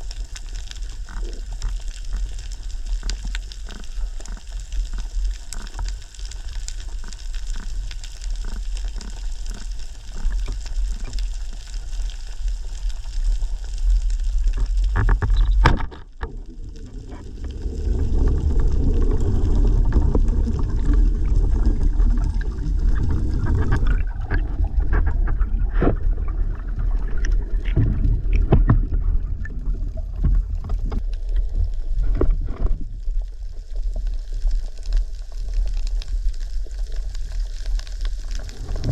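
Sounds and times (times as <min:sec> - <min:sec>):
rushing and bubbling water: 0:00.0 - 0:38.9
underwater crackle of clicks: 0:00.0 - 0:38.9.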